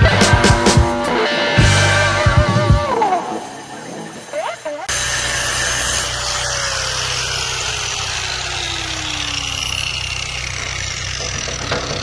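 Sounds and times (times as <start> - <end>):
motor humming: 4.9 - 12.0.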